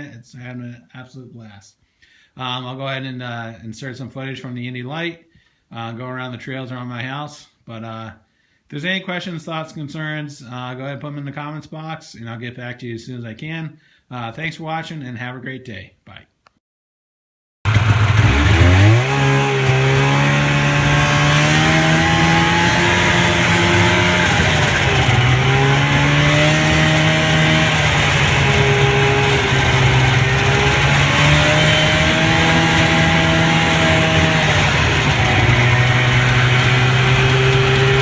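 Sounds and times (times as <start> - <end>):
snowmobile engine under throttle: 17.7 - 38.0.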